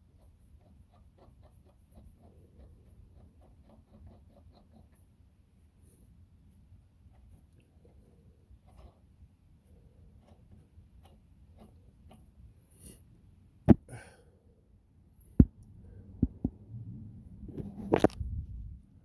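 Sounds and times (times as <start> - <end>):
rustling and scraping: 17.5 - 18.3.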